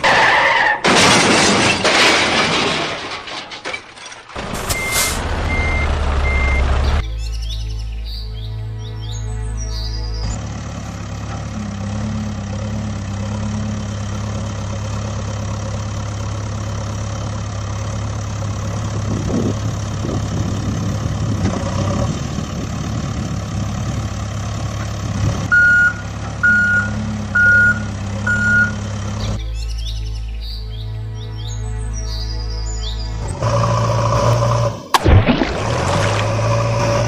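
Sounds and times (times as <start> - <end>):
truck engine running: 4.3 - 7.2, 8.7 - 29.5, 31.4 - 37.0
reversing beeps: 4.7 - 6.8, 25.5 - 28.8.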